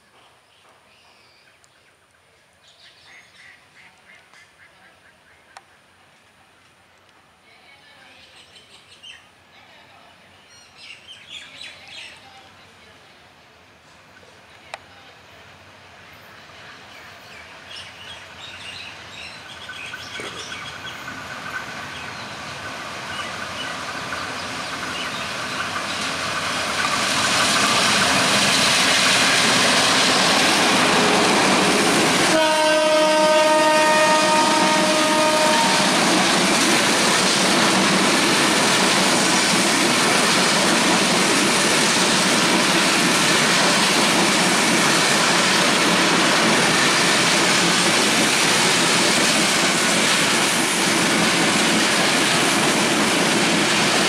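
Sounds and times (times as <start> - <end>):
diesel locomotive passing: 15.1 - 54.0
train horn chord: 32.2 - 36.1.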